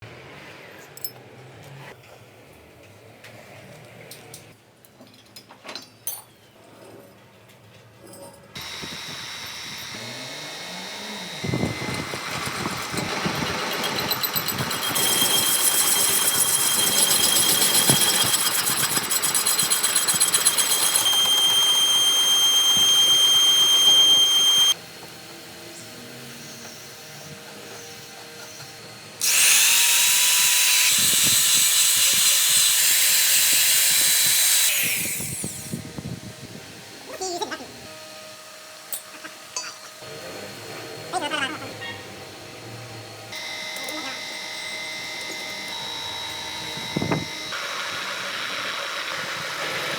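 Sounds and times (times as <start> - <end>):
power tools whining: 8.6 - 37.0, 38.7 - 49.9.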